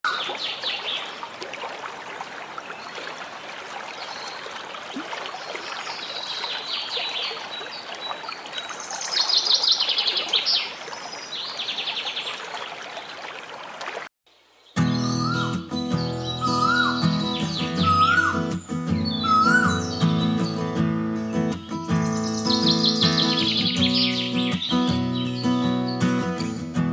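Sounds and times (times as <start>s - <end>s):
birds chirping and trilling: 0.1s - 1.3s, 5.4s - 13.2s, 14.5s - 26.5s.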